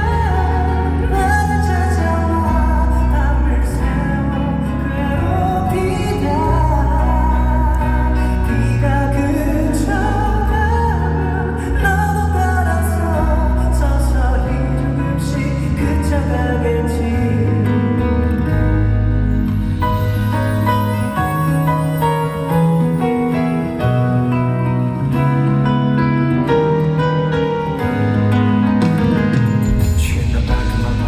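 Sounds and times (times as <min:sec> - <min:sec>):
male group singing pop ballad: 0:00.0 - 0:19.0, 0:29.8 - 0:31.0
backing music with heavy bass: 0:00.0 - 0:31.0.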